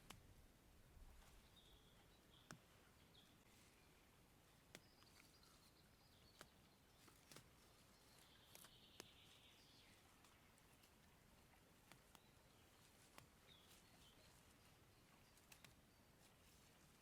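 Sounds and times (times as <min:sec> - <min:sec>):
soft sharp clicks: 0:02.4 - 0:02.7, 0:06.2 - 0:07.6, 0:08.5 - 0:09.3, 0:11.8 - 0:13.8, 0:15.4 - 0:15.8.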